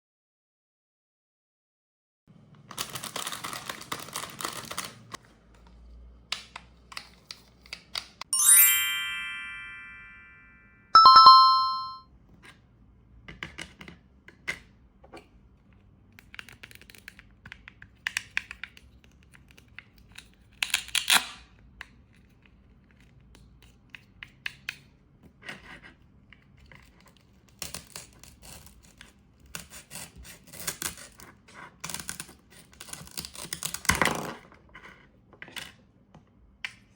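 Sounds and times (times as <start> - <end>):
bright chime notes: 8.4 - 12.0.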